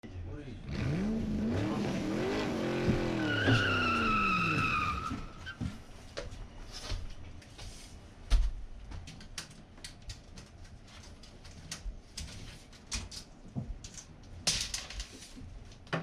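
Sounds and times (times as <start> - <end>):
high squeal: 3.0 - 5.6.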